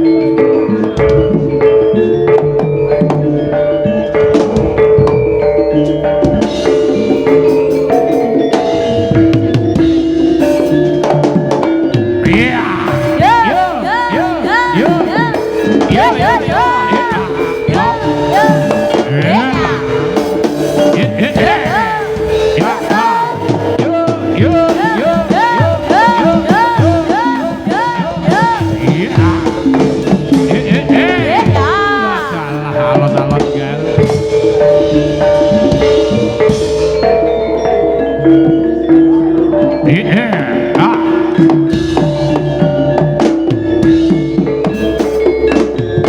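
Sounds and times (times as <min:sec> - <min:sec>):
drums: 0:00.0 - 0:46.0
high sliding melody: 0:00.0 - 0:46.0
tuned mallet percussion: 0:00.0 - 0:46.0
person singing with wavering pitch: 0:12.2 - 0:34.0.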